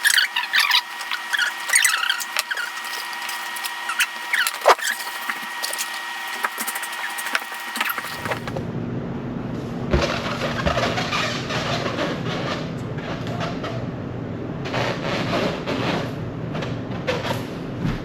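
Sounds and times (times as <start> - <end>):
short squeaks and clicks: 0.0 - 8.6.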